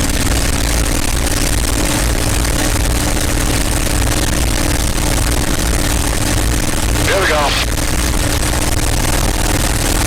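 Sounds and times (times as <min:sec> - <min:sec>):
aircraft engine droning: 0:05.4 - 0:09.8.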